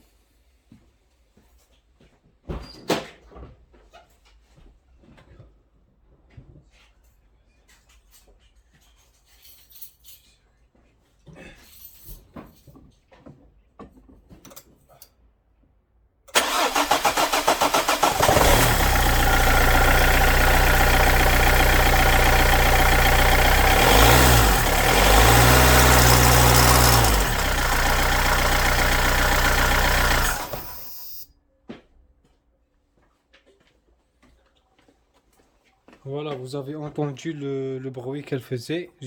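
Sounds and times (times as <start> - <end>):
diesel engine running and revving: 16.4 - 31.0
engine rubbing noise: 16.4 - 31.0
diesel engine cranking: 16.4 - 31.2.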